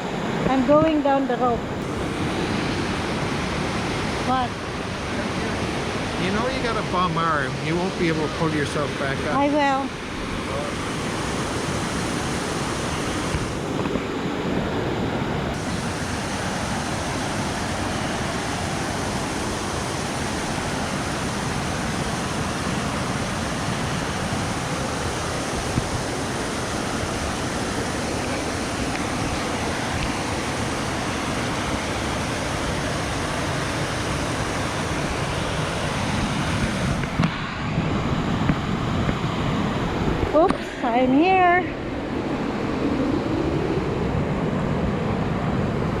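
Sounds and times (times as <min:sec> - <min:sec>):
river water pouring over rocks: 0:15.6 - 0:37.3.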